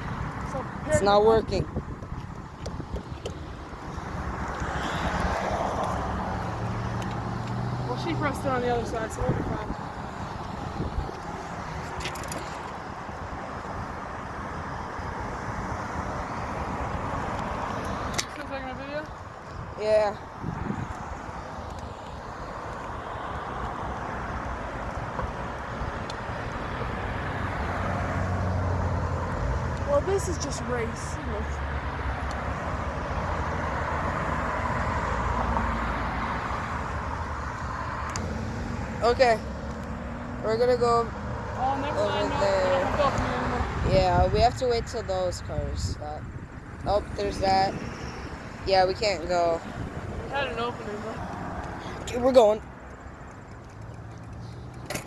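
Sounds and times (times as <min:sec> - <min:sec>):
road traffic noise: 0:00.0 - 0:55.0
high clicking: 0:52.6 - 0:55.0.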